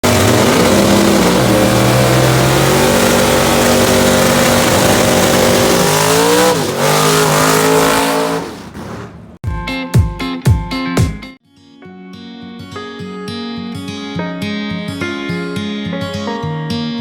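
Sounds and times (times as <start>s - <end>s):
race car engine at high revs: 0.0s - 9.4s.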